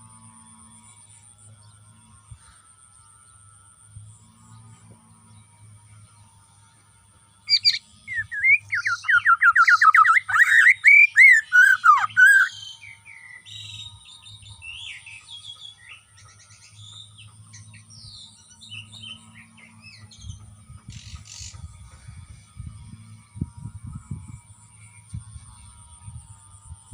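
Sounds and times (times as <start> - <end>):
songbird singing whistled phrases: 7.5 - 15.5.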